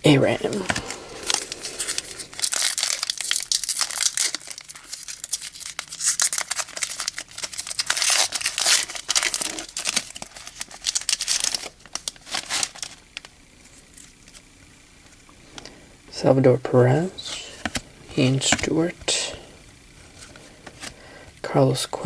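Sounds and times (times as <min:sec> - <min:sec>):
foil wrapper crinkling and tearing: 0:00.3 - 0:14.5.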